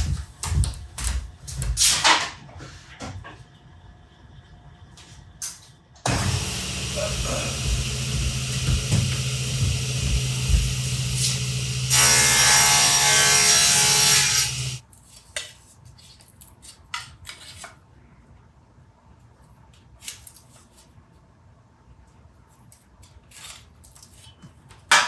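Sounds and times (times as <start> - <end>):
power tool cutting wood: 6.1 - 14.8
power tool motor running: 6.1 - 14.8.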